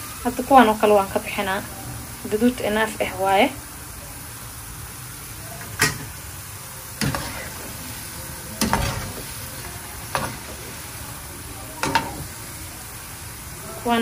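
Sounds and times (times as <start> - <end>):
dough frying in hot oil: 0.0 - 14.0
metal spoon scraping a pan: 7.0 - 8.0, 8.6 - 10.8.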